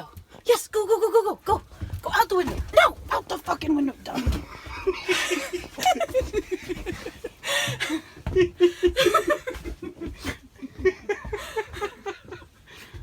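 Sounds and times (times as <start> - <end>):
people laughing: 4.6 - 12.5.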